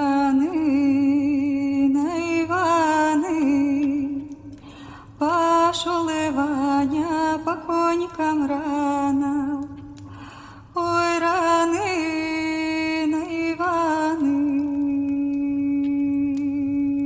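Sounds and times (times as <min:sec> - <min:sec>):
woman singing unaccompanied: 0:00.0 - 0:04.6, 0:05.2 - 0:10.0, 0:10.8 - 0:17.0
woman breathing in: 0:04.6 - 0:05.2, 0:10.0 - 0:10.8.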